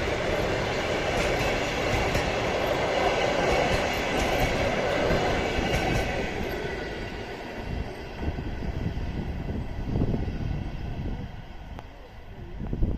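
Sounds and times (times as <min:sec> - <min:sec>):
train wheels clattering over rail joints: 0:00.0 - 0:08.2.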